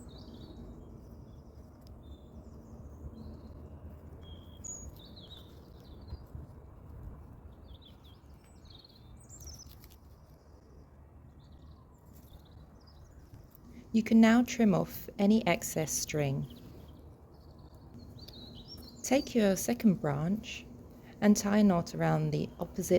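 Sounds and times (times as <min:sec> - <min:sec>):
small birds chirping and singing: 0:00.0 - 0:06.5, 0:07.5 - 0:22.9
low outdoor rumble: 0:10.2 - 0:22.9.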